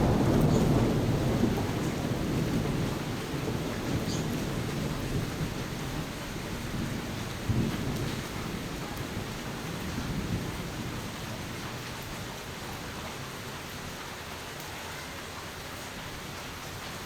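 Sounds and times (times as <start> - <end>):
thunder rumble: 0.0 - 11.2
heavy rain: 0.0 - 17.0.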